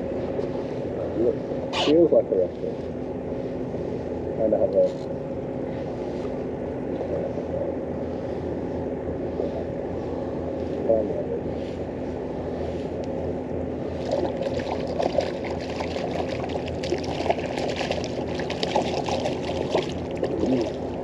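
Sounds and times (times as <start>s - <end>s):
steady low hum: 0.0s - 21.0s
water splashing and trickling: 14.0s - 21.0s.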